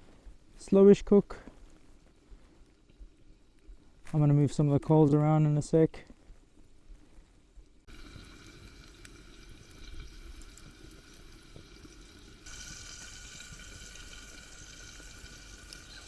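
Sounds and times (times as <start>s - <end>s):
campfire crackling: 0.0s - 5.2s, 5.9s - 16.0s
meat sizzling over fire: 7.8s - 16.0s.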